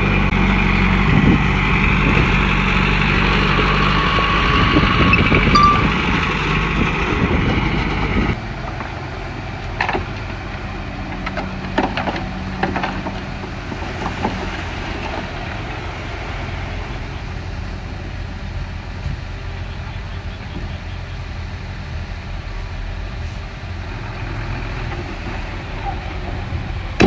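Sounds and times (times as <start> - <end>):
bulldozer diesel engine running: 0.0 - 27.0
sharp metallic knocks: 5.5 - 6.4.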